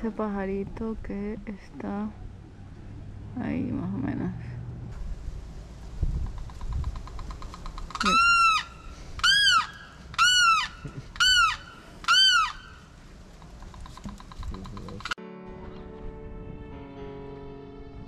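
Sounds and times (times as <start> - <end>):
bird calling rising and falling: 6.3 - 15.2.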